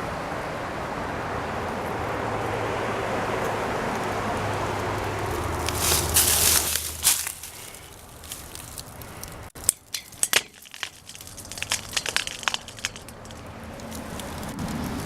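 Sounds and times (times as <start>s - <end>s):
footsteps crunching on rubble: 5.2s - 15.0s.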